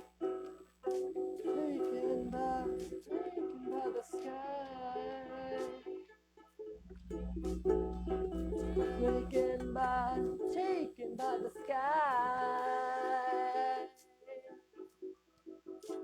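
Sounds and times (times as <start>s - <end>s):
person humming: 1.4s - 5.9s, 6.9s - 11.7s
low hum: 6.8s - 10.5s
acoustic guitar strumming: 6.8s - 10.7s.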